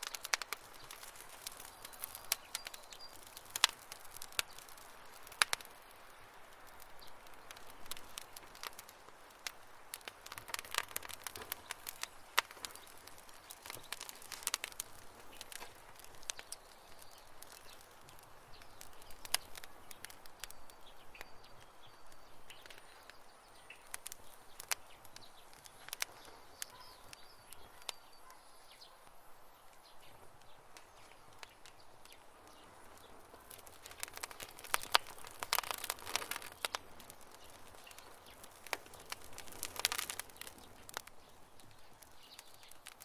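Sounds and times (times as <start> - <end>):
campfire crackling: 0.0 - 43.0
faint high chirps: 18.6 - 31.5.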